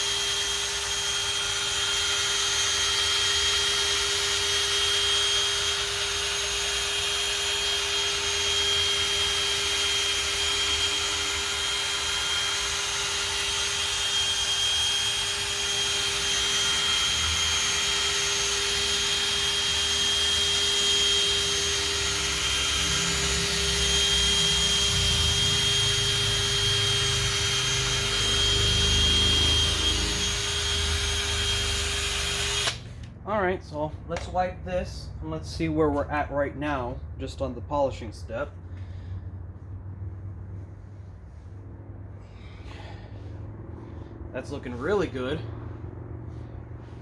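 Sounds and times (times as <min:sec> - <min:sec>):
power tool polishing whine: 0:00.0 - 0:32.9, 0:44.4 - 0:45.4.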